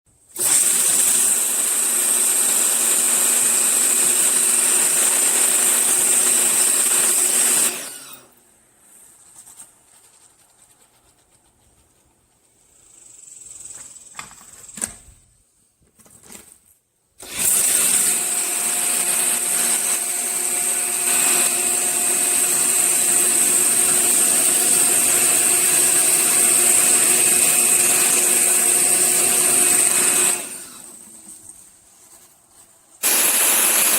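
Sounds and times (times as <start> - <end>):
pressure washer running: 17.2 - 30.9, 33.0 - 33.9.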